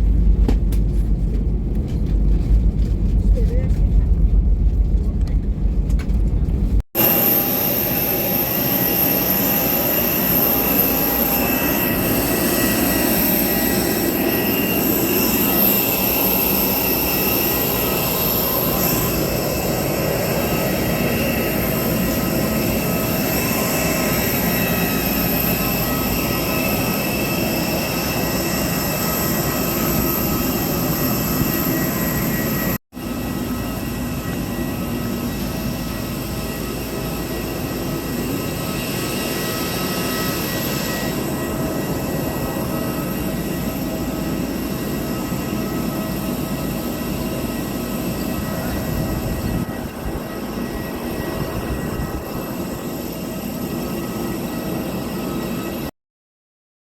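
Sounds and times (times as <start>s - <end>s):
high-pitched machinery whines: 7.0s - 55.9s.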